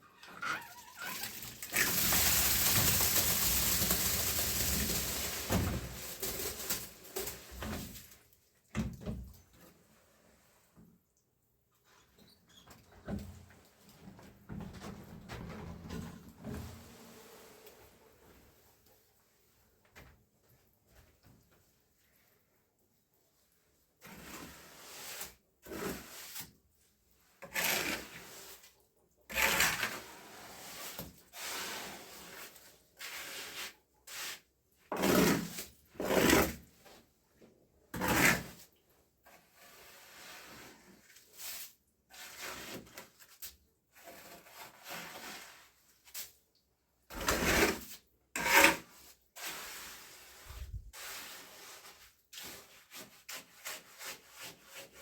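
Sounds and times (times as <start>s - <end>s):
hand tool scraping rough surface: 1.7s - 8.0s, 24.0s - 26.5s, 27.4s - 28.6s, 29.3s - 36.7s, 37.9s - 38.7s, 39.3s - 43.2s, 43.9s - 45.8s, 47.1s - 55.0s.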